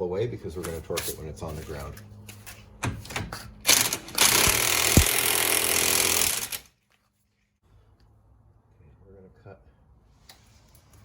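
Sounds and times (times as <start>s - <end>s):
impact wrench hammering: 3.7s - 6.7s.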